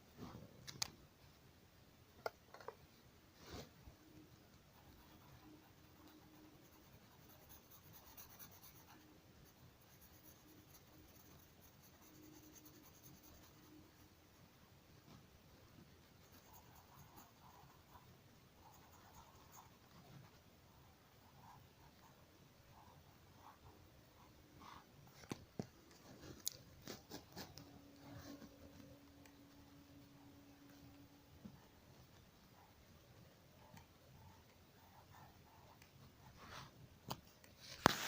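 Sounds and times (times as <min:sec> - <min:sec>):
pen scratching on paper: 0:04.8 - 0:14.0, 0:16.0 - 0:20.4.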